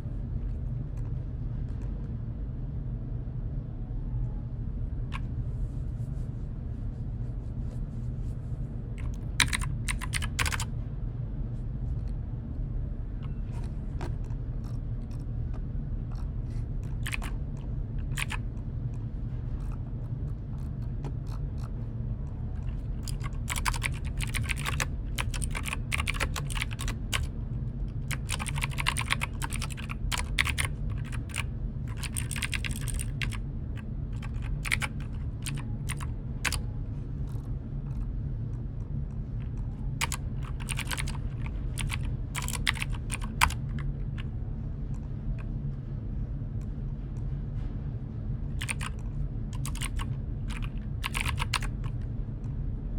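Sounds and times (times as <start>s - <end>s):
steady low hum: 0.0s - 52.9s
keyboard typing: 9.0s - 10.7s, 13.2s - 18.5s, 22.3s - 27.3s, 27.9s - 36.7s, 39.4s - 44.3s, 48.6s - 52.0s.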